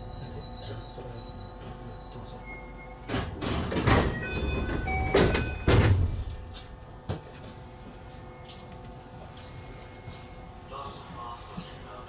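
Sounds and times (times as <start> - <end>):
train low hum: 0.0 - 12.0
high beeping tones: 4.2 - 5.8.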